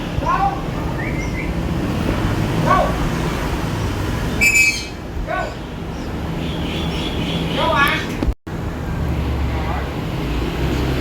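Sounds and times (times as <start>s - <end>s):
rising and falling bird calls: 0.2s - 1.6s, 4.4s - 7.9s
shrill bird chirp: 0.9s - 1.6s, 4.4s - 7.8s.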